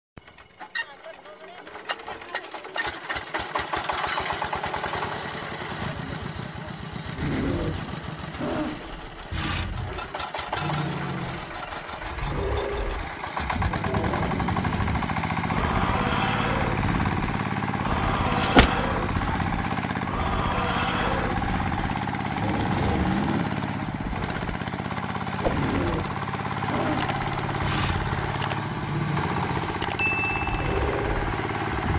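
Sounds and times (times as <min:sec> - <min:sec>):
engine chugging and idling: 0:00.2 - 0:31.9.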